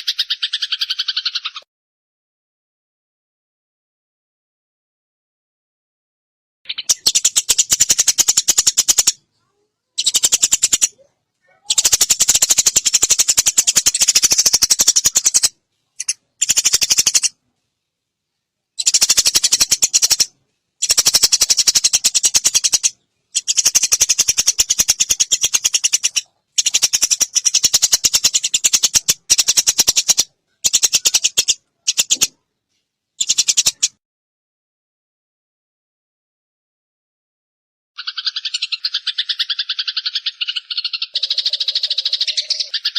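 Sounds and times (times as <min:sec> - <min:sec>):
sparrow chirping rapidly: 0:00.0 - 0:01.6, 0:06.7 - 0:17.4, 0:18.8 - 0:32.4, 0:33.2 - 0:34.0, 0:38.0 - 0:42.9.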